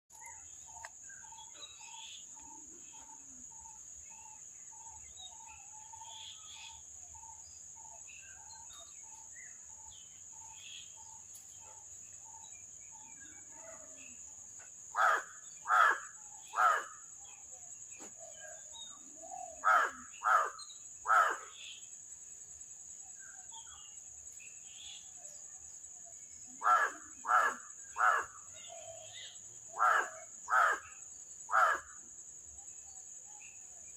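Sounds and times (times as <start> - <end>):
crow cawing: 15.0 - 17.0, 19.6 - 21.6, 26.6 - 28.4, 29.7 - 32.0.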